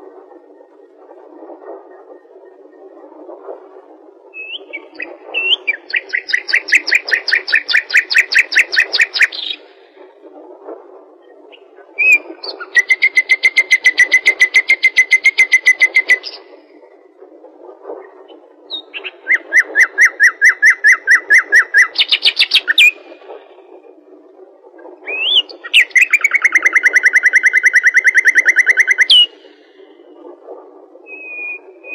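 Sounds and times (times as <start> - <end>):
low steady hiss: 0.0 - 31.9
bird singing rapid trills: 25.1 - 29.5, 31.1 - 31.9.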